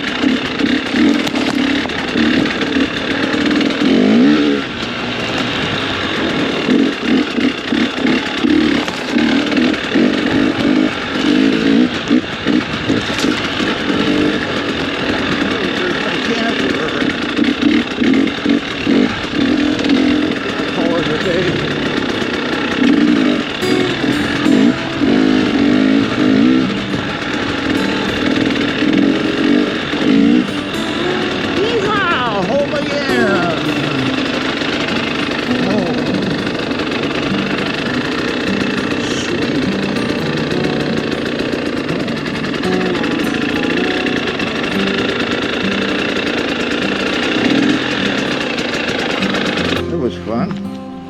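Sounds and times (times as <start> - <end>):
motorcycle engine revving: 0.0 - 49.8.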